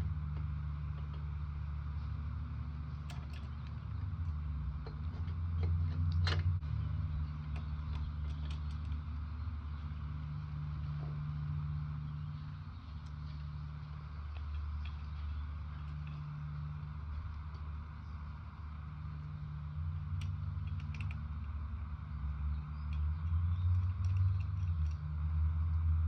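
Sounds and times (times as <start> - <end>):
low mechanical hum: 0.0 - 26.0
small metal parts clicking: 3.0 - 4.0, 7.4 - 9.1, 20.2 - 21.6, 22.8 - 25.0.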